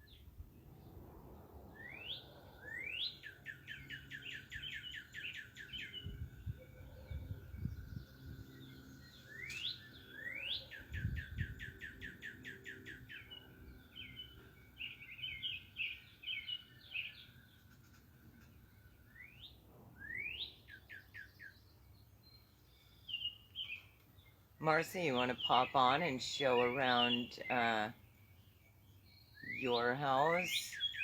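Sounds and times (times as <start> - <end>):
songbirds singing: 0.0 - 31.0.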